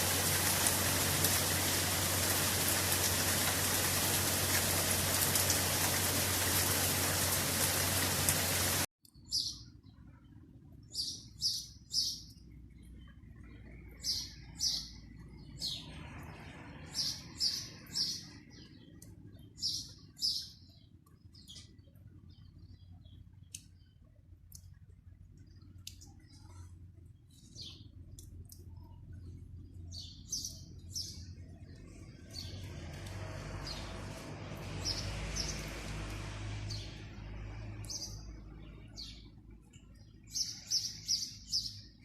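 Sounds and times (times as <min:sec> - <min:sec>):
heavy rain: 0:00.0 - 0:08.9
small bird chirping: 0:09.0 - 0:10.0, 0:37.8 - 0:42.0.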